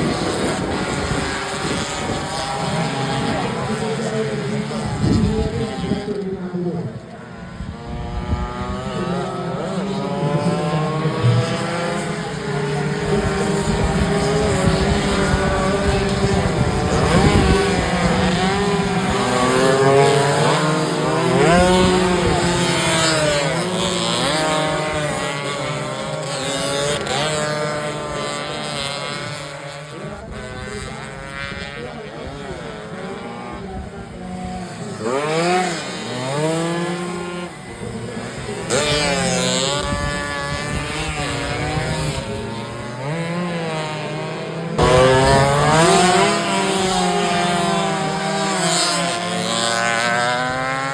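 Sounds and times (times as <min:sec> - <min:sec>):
motorcycle engines revving and passing: 0:00.0 - 0:50.9.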